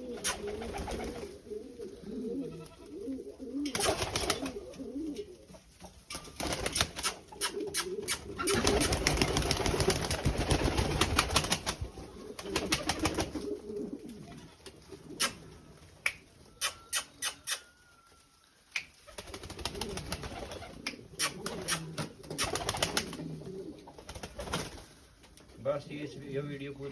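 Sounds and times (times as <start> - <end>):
birds cooing: 0.0 - 5.5, 7.0 - 9.9, 11.7 - 15.8, 16.4 - 24.2.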